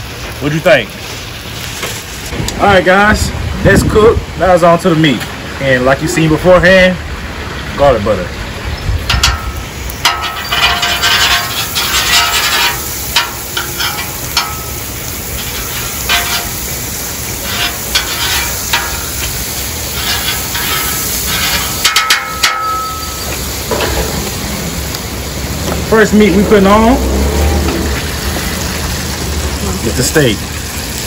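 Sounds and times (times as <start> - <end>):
butter sizzling: 0.0 - 3.1, 7.4 - 31.0
metal spatula scraping griddle: 9.1 - 24.2.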